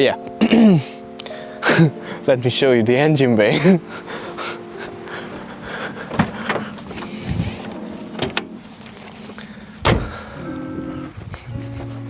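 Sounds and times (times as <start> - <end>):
car bonnet latch clicks: 6.0 - 8.6, 9.8 - 10.2.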